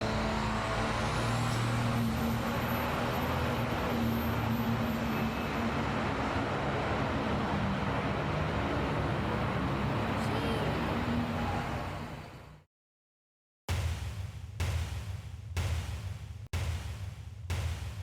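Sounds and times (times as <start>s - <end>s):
engine running: 0.0s - 12.6s.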